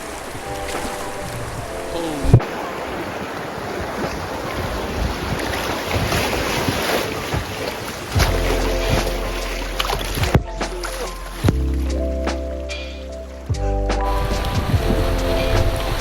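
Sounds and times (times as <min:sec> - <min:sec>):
river water rushing: 0:00.0 - 0:12.3, 0:14.0 - 0:16.0
wind buffeting microphone: 0:00.0 - 0:16.0.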